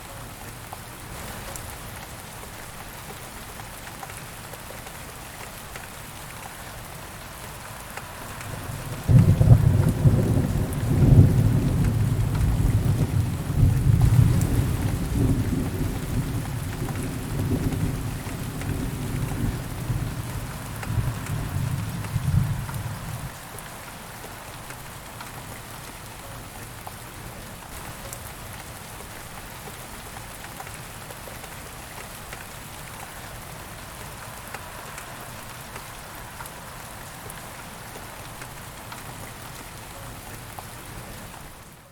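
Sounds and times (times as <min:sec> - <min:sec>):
rain falling: 0:00.0 - 0:41.9
raindrop ticks: 0:00.7 - 0:27.1, 0:27.7 - 0:41.4
low thunder rumble: 0:08.5 - 0:23.4.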